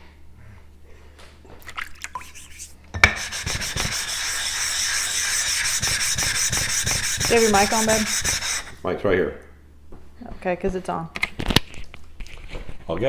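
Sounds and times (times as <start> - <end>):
stone rubbing on plate: 2.1 - 8.8.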